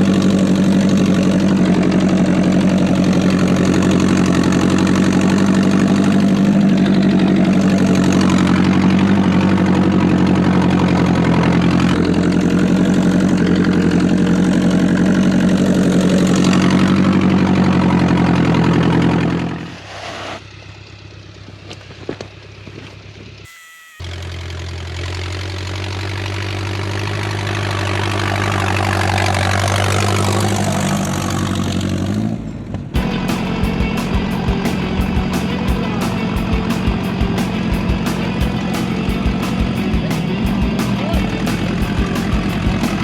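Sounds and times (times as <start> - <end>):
tractor engine running under load: 0.0 - 19.7, 24.1 - 43.0.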